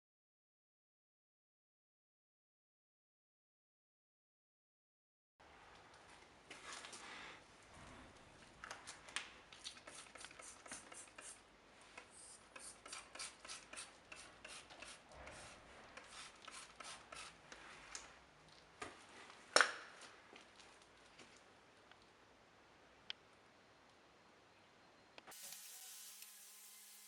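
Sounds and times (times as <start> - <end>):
light tool clicks and scrapes: 9.5 - 18.1.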